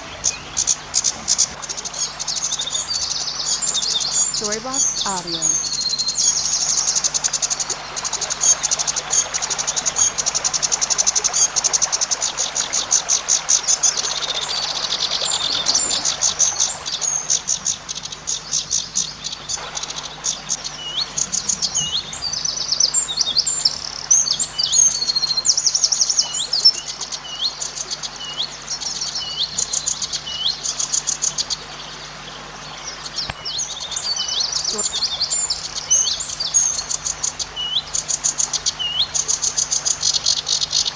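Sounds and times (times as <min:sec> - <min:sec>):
bird shrill buzzing song: 0:02.4 - 0:07.0, 0:33.2 - 0:40.9.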